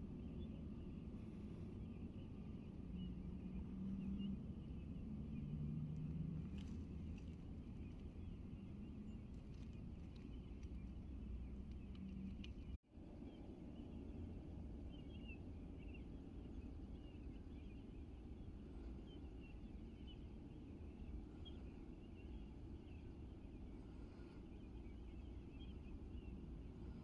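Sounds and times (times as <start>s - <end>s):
birds chirping: 0.0s - 27.0s
low outdoor rumble: 0.0s - 27.0s.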